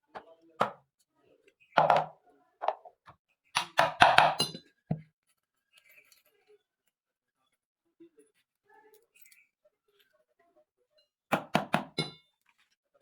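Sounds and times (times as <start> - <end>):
hard objects knocking and clinking: 1.8 - 5.1.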